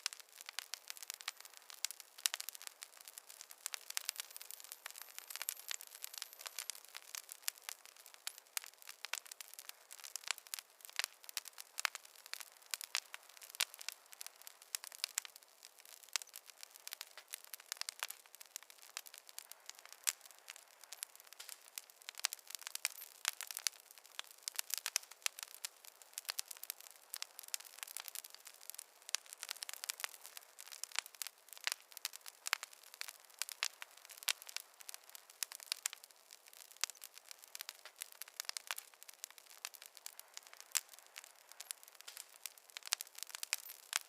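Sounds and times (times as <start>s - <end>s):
fireplace fire crackling: 0.0s - 44.0s.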